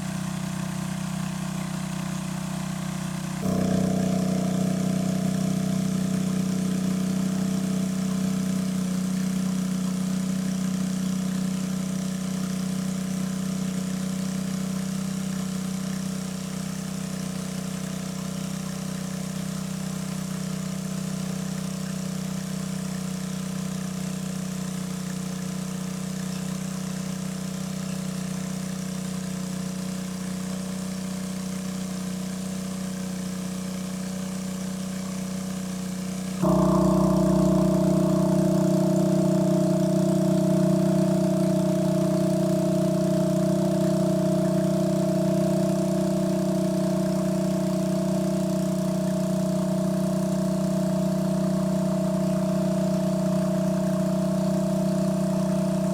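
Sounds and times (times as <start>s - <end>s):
small engine running: 0.0s - 16.6s, 36.4s - 55.9s.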